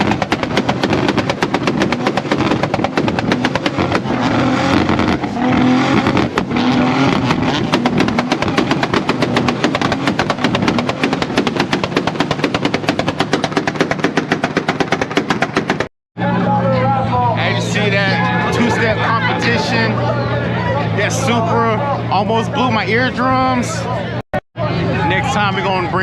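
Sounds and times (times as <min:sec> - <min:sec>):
car engine on rev limiter: 0:00.0 - 0:14.6, 0:15.5 - 0:23.4
exhaust pops: 0:00.0 - 0:15.9.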